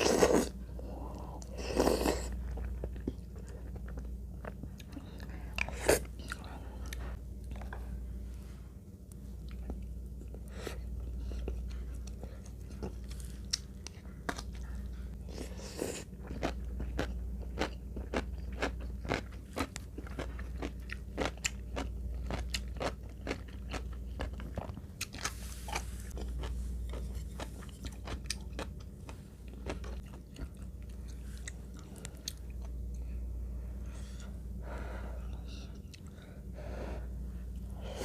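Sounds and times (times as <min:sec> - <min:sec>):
chewing crunchy food: 0:09.4 - 0:33.1.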